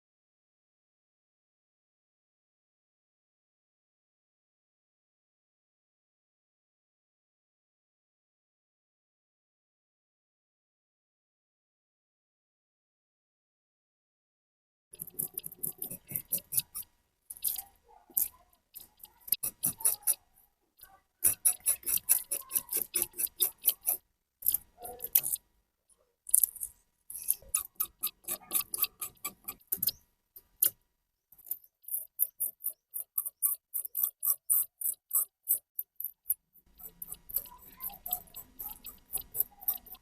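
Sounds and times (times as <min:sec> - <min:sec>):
hand tool scratching rusty metal: 0:15.0 - 0:20.3, 0:21.2 - 0:25.4, 0:26.3 - 0:30.0, 0:31.4 - 0:40.0.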